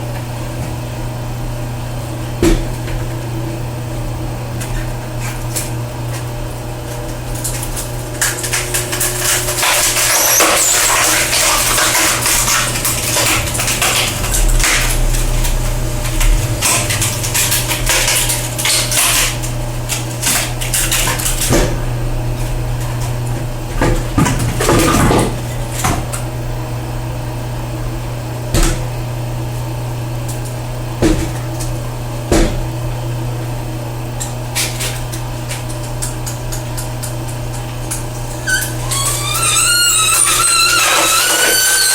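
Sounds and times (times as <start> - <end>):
electric motor humming: 8.1 - 28.5.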